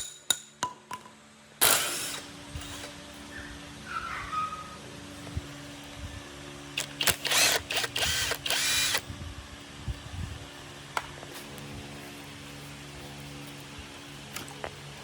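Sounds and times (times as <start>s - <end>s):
low workshop hum: 0.0s - 15.0s
power drill running: 1.6s - 3.2s, 6.7s - 9.1s.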